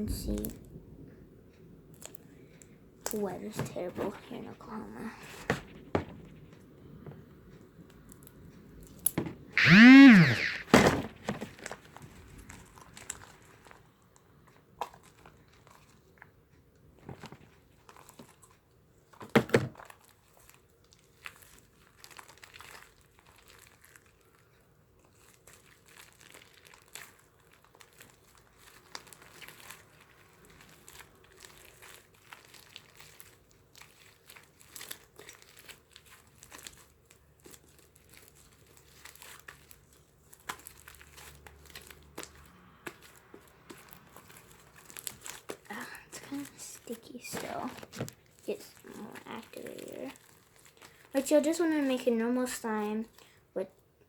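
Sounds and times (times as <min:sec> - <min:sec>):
loud cry: 0:09.6 - 0:10.8
slime squished by hand: 0:19.8 - 0:51.9.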